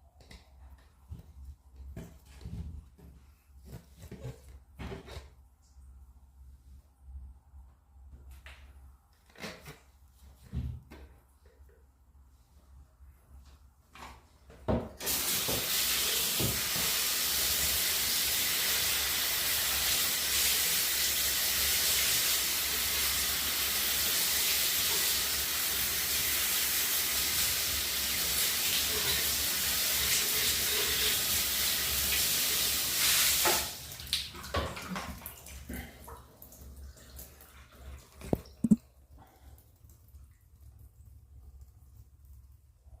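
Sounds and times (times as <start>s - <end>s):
floor cleaner hiss and hum: 15.0s - 33.9s.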